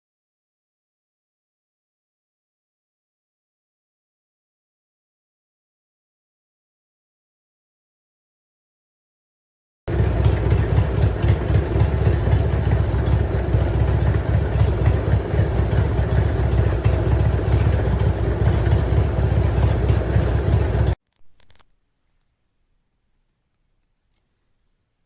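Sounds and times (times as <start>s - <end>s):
motorcycle engine running: 9.9s - 21.0s.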